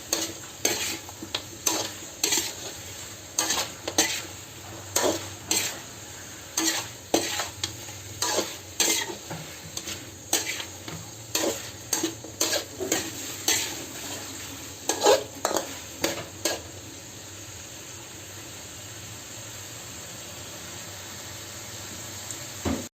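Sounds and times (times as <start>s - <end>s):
utensil scraping and clanking pan: 0.0s - 16.7s
food sizzling in a pan: 0.0s - 22.9s.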